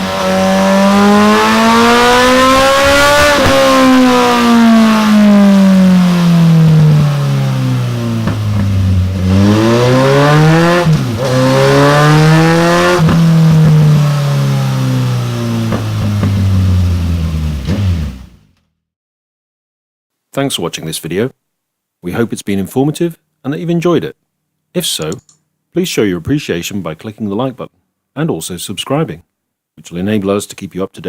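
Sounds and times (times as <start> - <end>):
motorcycle engine revving: 0.0 - 18.6.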